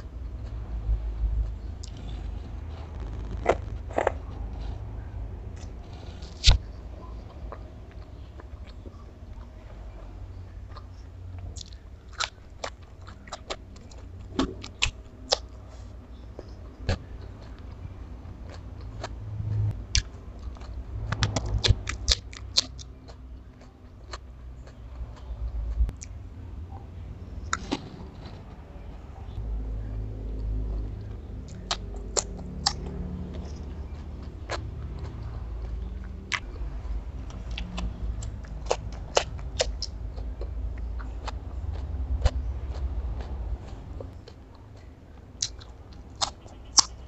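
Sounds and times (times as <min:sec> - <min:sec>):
low steady hum: 0:00.0 - 0:47.0
person chewing food: 0:00.0 - 0:47.0.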